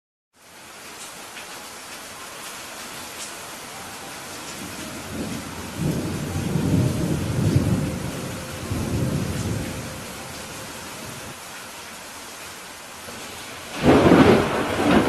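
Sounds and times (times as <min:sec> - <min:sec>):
steady rain falling: 0:00.3 - 0:15.0
low roll of thunder: 0:04.5 - 0:11.4, 0:13.2 - 0:15.0.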